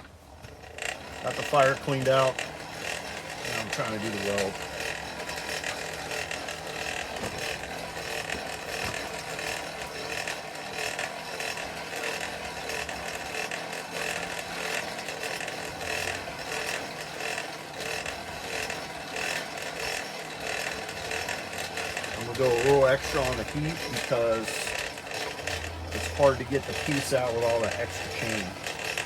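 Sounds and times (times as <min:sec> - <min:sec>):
forge blower rushing air: 0:00.0 - 0:29.0.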